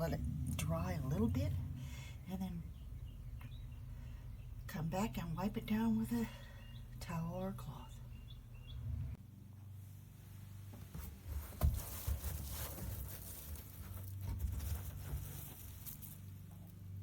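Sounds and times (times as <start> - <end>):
steady low hum: 0.0 - 11.9
rustling and scraping: 10.3 - 17.0.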